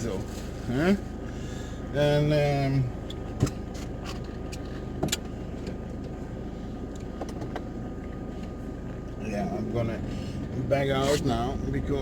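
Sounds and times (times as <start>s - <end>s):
van engine idling: 0.0s - 12.0s
clicks and knocks inside van: 3.0s - 6.2s, 6.9s - 8.2s.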